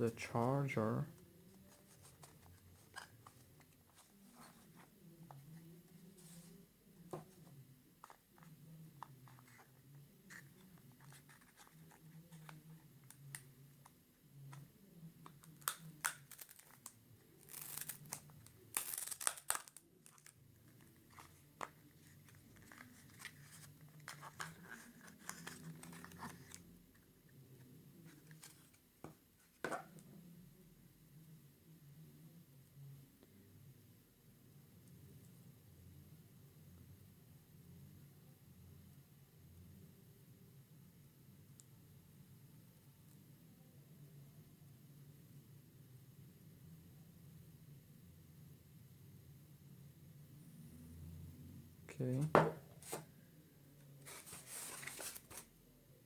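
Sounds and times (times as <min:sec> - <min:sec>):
wrapping crinkling and tearing: 0:15.4 - 0:26.6, 0:54.0 - 0:55.5.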